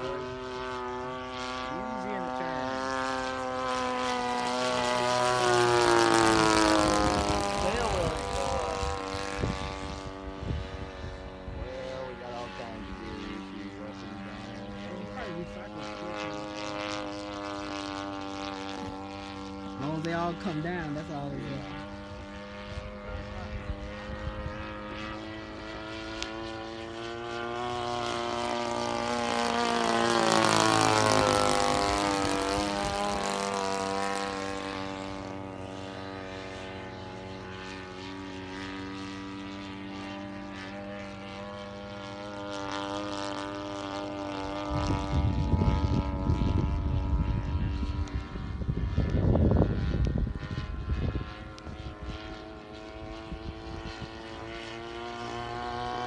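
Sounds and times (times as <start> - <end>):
model airplane droning overhead: 0.0 - 56.0.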